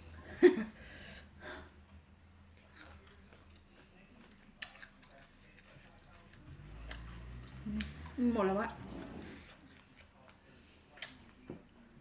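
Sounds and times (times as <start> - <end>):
person chewing food: 2.4 - 8.2, 8.8 - 11.5.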